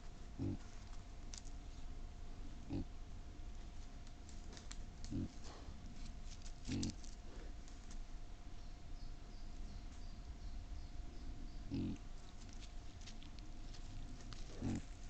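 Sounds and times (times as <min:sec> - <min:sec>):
wild boar grunting: 0:00.0 - 0:00.9, 0:02.5 - 0:03.0, 0:05.0 - 0:05.9, 0:06.6 - 0:07.6, 0:11.6 - 0:12.6, 0:13.9 - 0:15.0.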